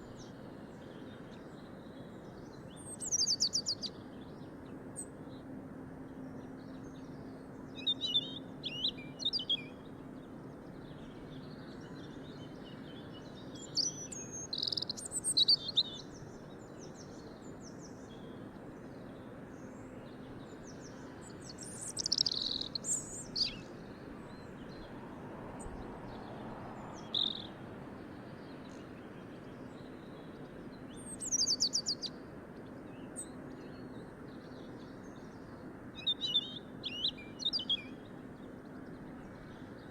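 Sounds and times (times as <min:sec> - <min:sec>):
birds chirping and singing: 0:13.6 - 0:16.3, 0:21.5 - 0:23.7.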